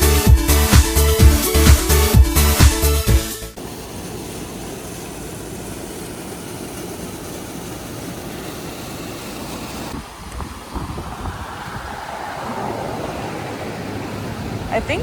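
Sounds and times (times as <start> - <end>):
wind rush: 3.7 - 15.0.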